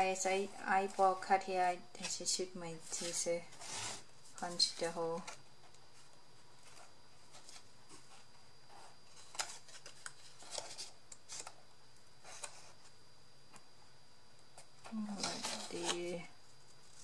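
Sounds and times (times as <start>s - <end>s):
paper rustling: 2.0s - 11.6s.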